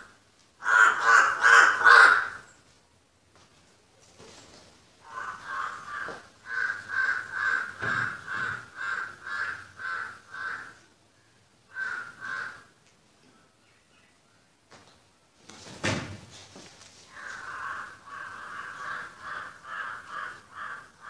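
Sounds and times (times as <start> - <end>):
bird calling: 5.0 - 10.8.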